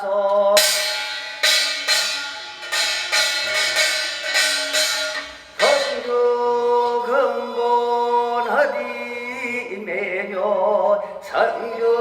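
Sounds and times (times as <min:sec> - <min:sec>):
sharp bright percussion strikes: 0:00.6 - 0:06.2.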